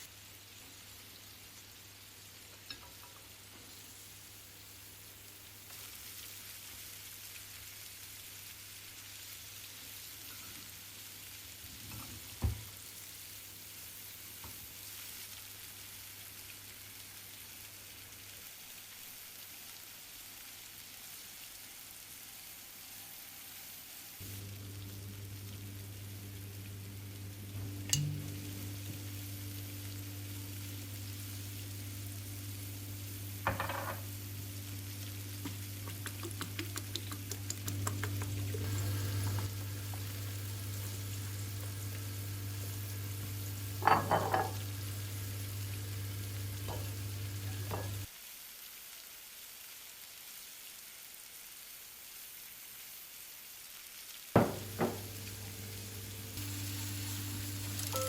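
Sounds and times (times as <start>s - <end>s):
food sizzling in a pan: 0.0s - 58.0s
steady low hum: 54.6s - 58.0s
utensil clinking against pan: 57.8s - 58.0s.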